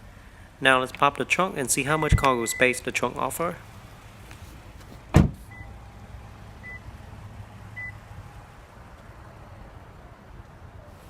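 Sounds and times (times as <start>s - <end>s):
low steady hum: 0.0s - 8.3s
short high warning beeps: 1.8s - 2.9s.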